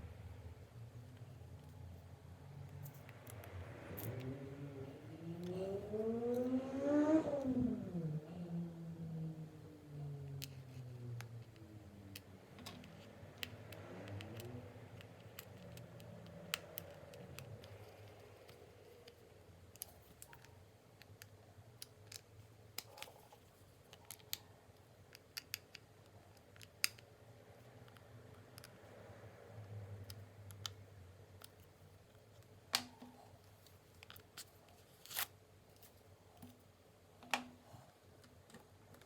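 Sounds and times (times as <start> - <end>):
small clicks and taps of handling: 10.3 - 27.2, 27.8 - 28.8, 30.0 - 34.5.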